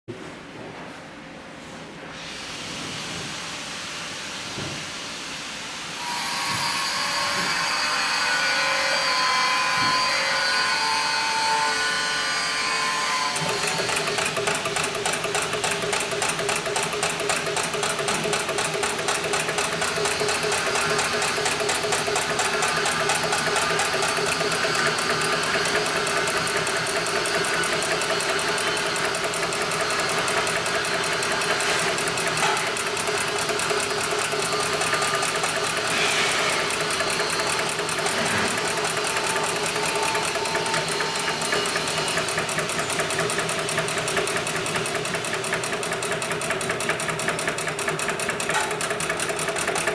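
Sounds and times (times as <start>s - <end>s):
sewing machine running: 13.2s - 49.9s.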